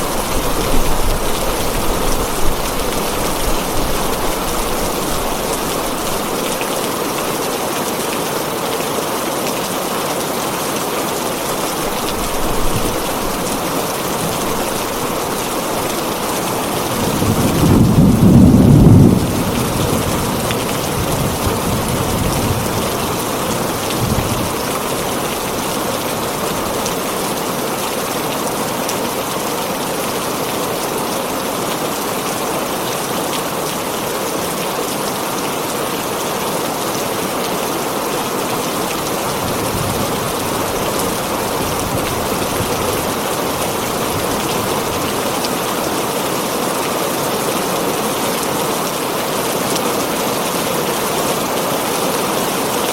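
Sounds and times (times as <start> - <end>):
thunder rumbling: 0.0 - 6.6, 11.6 - 24.7
heavy rain on a tin roof: 0.0 - 52.9.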